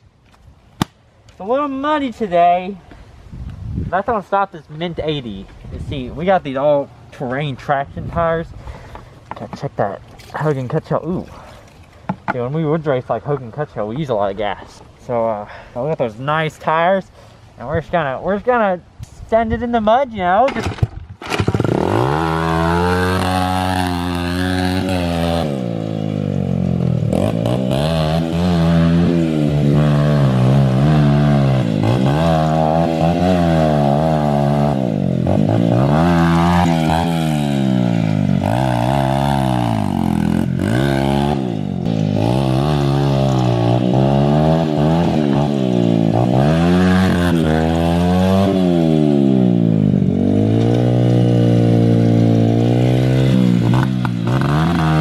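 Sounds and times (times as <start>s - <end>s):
dirt bike engine revving: 21.2s - 55.0s.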